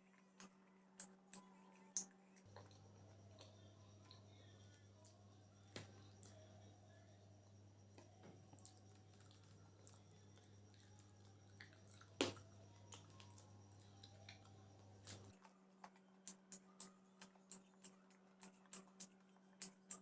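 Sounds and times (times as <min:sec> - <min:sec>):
steady low hum: 0:02.4 - 0:15.4
person chewing food: 0:07.9 - 0:20.0.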